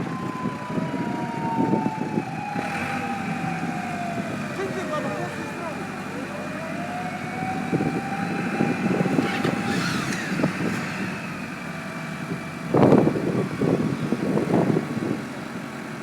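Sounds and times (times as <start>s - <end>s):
siren tone: 0.0s - 10.5s
vehicle engine running: 2.6s - 16.0s.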